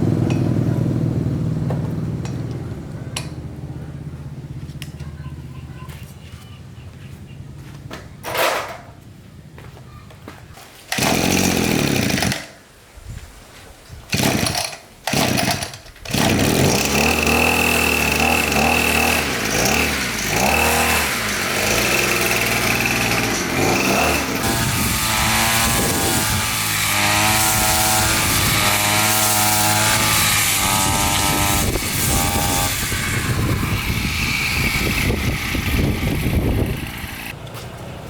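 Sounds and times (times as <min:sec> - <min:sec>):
lawn mower engine starting: 0:10.8 - 0:12.6, 0:14.1 - 0:37.4.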